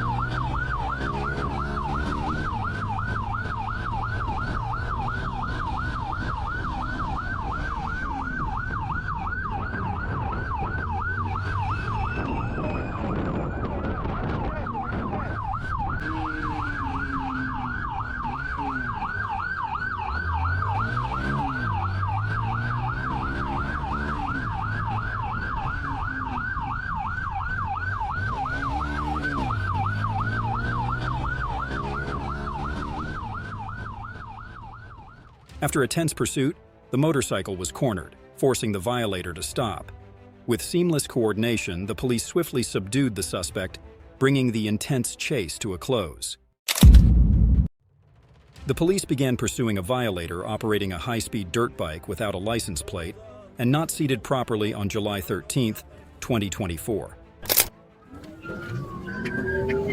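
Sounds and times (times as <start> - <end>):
vehicle engine revving: 0.0 - 8.9, 13.9 - 34.8, 58.0 - 59.9
police siren yelping: 0.0 - 35.4, 57.5 - 59.9.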